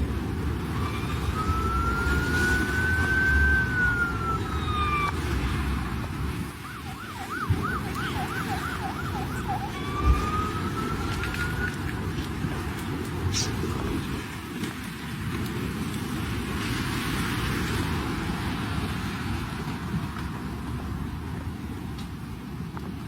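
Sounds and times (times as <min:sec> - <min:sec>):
emergency vehicle siren: 0:00.1 - 0:12.7.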